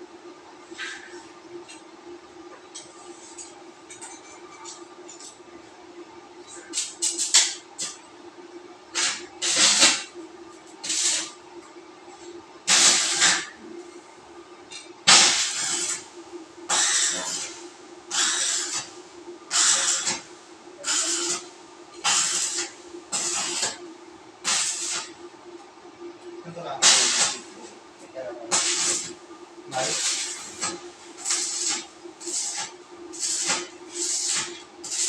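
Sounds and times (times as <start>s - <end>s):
power sprayer hissing bursts: 16.7s - 17.4s.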